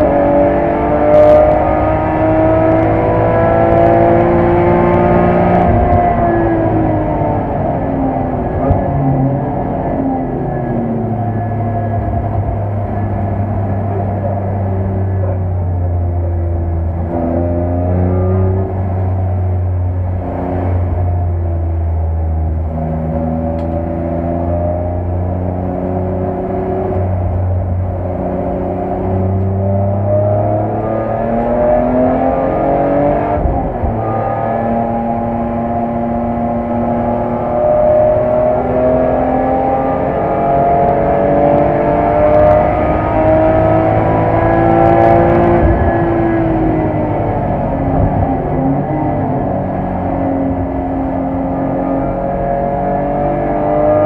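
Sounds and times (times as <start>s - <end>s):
car engine accelerating hard: 0.0s - 54.0s.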